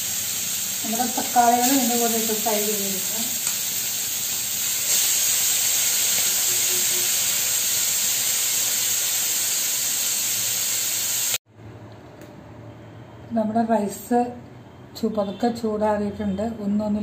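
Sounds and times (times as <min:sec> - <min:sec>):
food sizzling in a frying pan: 0:00.0 - 0:11.4.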